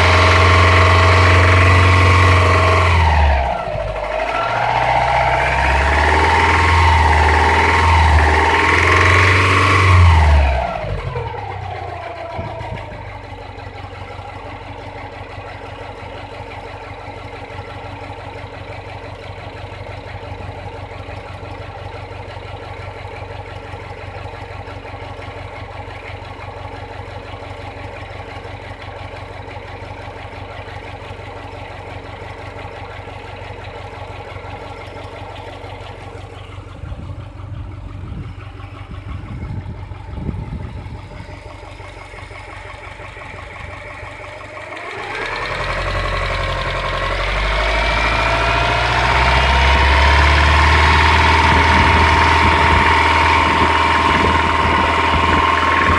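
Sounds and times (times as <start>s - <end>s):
car engine idling with knock: 0.0s - 55.9s.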